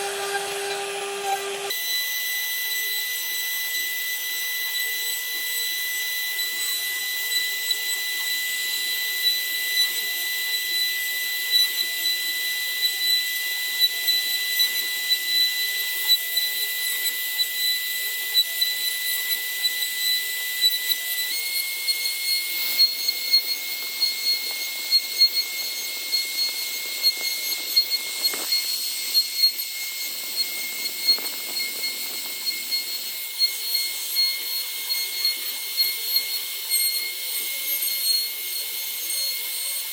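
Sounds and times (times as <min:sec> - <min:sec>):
router spindle whining: 0:00.0 - 0:39.9
cutting wood hiss: 0:22.0 - 0:37.0.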